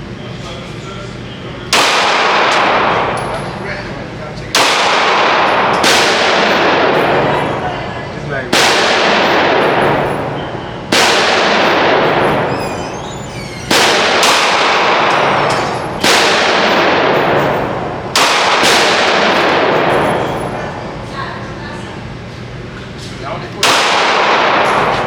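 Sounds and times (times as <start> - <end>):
gunshots with echo: 1.7 - 3.8, 4.5 - 12.6, 13.7 - 20.8, 23.6 - 25.0.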